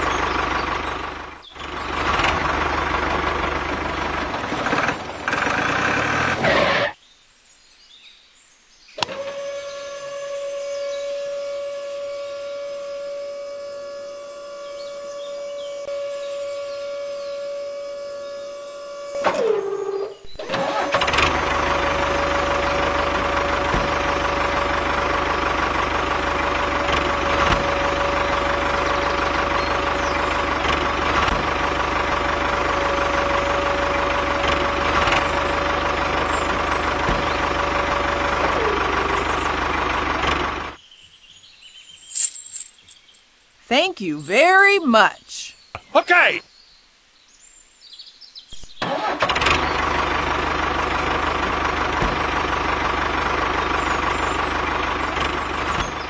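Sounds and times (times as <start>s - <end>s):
small electric motor whining: 9.0s - 40.7s.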